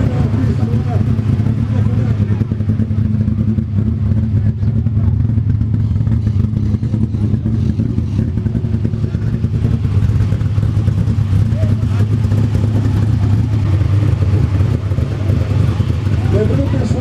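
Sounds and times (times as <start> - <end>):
car engine running low hum: 0.0 - 17.0.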